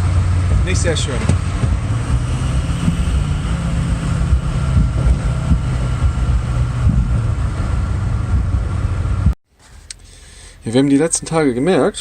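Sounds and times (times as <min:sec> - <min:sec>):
truck engine low rumble: 0:00.0 - 0:09.4.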